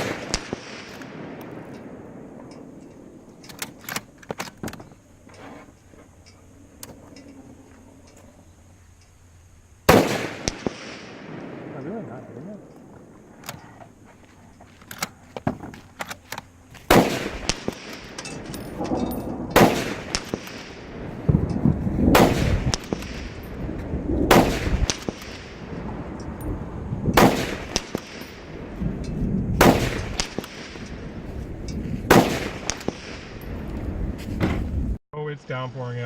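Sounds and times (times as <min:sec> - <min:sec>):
gunshots with echo: 0:00.0 - 0:02.2, 0:16.9 - 0:21.4, 0:22.1 - 0:23.5, 0:24.2 - 0:25.7, 0:27.1 - 0:28.5, 0:29.6 - 0:31.2, 0:32.1 - 0:33.3.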